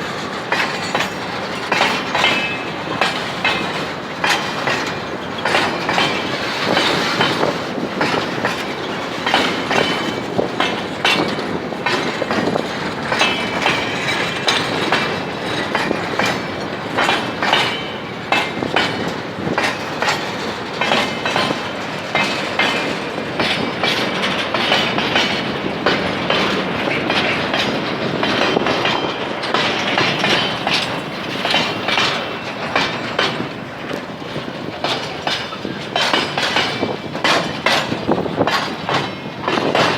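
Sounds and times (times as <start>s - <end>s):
wheels clicking over rail joints: 0.0s - 39.9s.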